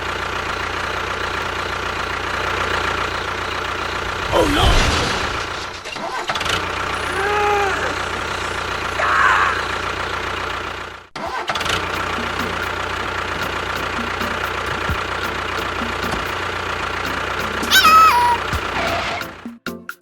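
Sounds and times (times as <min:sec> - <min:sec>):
small motor running: 0:06.3 - 0:18.7.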